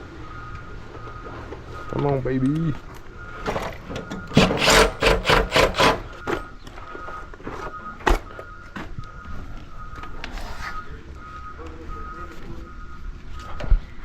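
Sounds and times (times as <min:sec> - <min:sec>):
vehicle reversing beeper: 0:00.0 - 0:14.0
scraping rasping strokes: 0:04.4 - 0:06.2.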